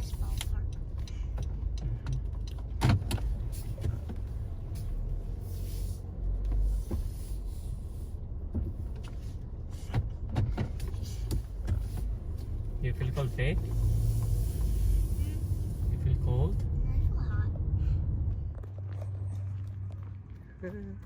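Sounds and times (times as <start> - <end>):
car engine low rumble: 0.0 - 21.0.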